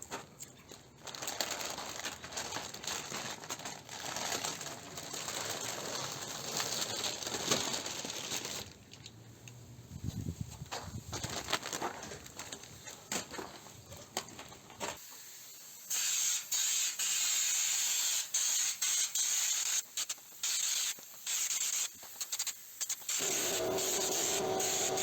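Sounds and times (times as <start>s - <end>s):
spray bursts hissing: 15.0s - 25.0s.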